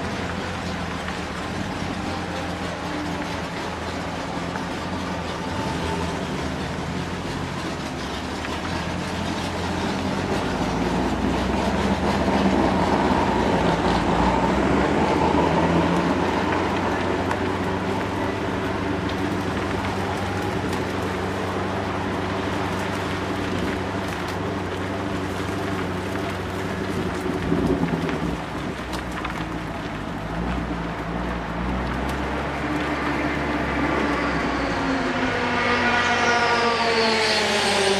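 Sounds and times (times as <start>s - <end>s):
tyre noise: 0.0s - 35.4s
car engine running hard: 0.0s - 37.9s
wind and road noise: 0.0s - 37.9s
wind noise: 26.7s - 29.3s.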